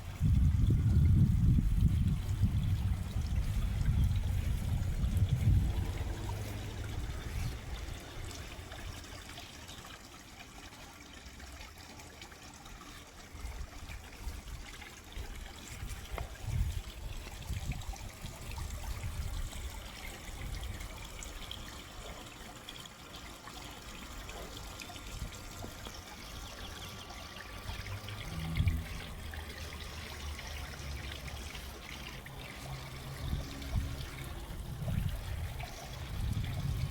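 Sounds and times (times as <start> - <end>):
water trickling and splashing: 0.0 - 36.9.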